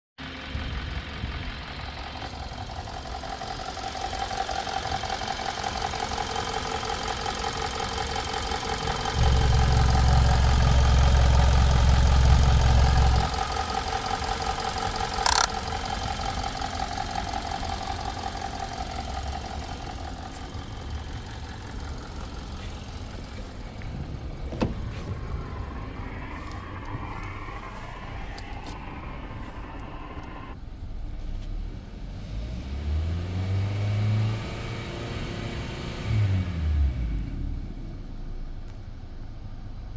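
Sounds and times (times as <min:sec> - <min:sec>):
car engine idling: 0:00.2 - 0:37.2
sharp click: 0:15.2 - 0:15.6.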